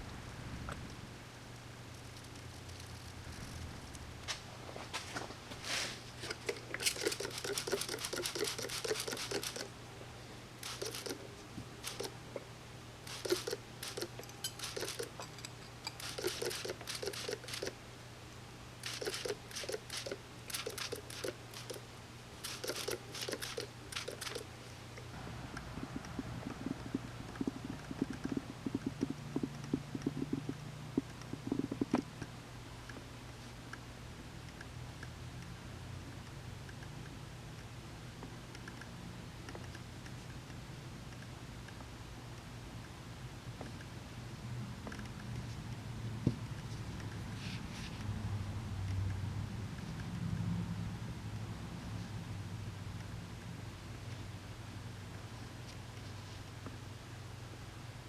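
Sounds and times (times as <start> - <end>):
steady low hum: 0.0 - 58.0
scratchy hand strokes: 2.0 - 9.7, 10.6 - 11.2, 11.8 - 12.2, 13.1 - 15.2, 16.0 - 17.8, 18.8 - 21.8, 22.4 - 24.5.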